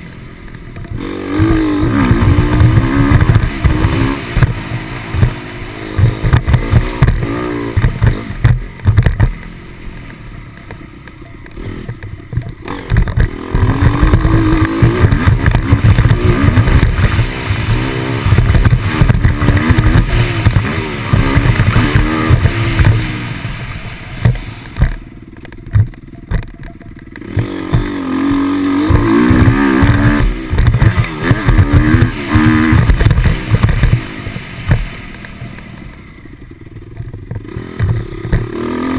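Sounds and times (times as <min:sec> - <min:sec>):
motocross engine revving: 0:00.0 - 0:38.9
low thudding: 0:00.5 - 0:28.0.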